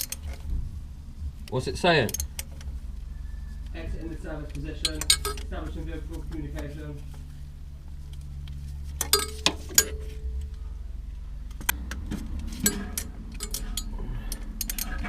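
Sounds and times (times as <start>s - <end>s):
steady low hum: 0.0s - 15.0s
metal clinking and knocking: 4.8s - 5.6s, 9.0s - 10.4s, 12.5s - 15.0s.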